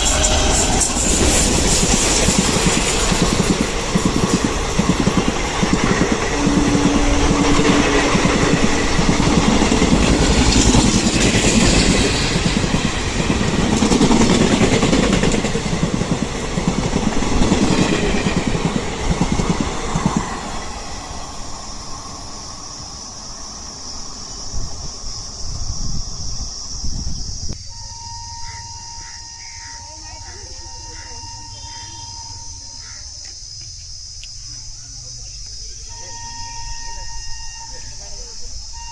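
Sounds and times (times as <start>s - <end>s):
train passing at speed: 0.0s - 33.6s, 34.6s - 38.9s.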